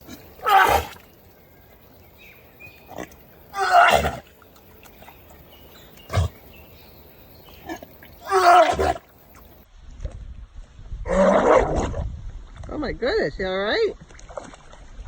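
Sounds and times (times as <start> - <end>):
dog grumbling calls: 0.0 - 1.0.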